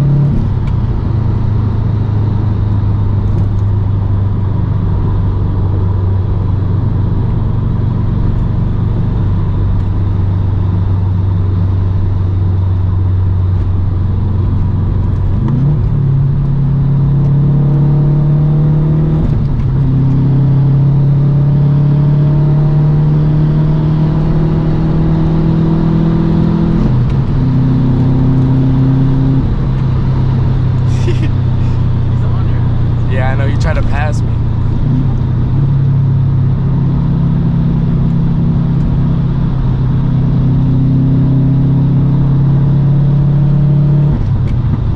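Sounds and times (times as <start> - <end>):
car engine droning: 0.0 - 44.9.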